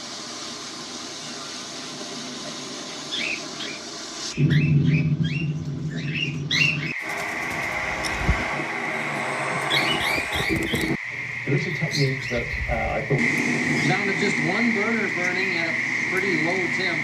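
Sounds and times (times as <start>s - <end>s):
young parrots chirping: 4.4s - 7.0s, 9.7s - 11.0s.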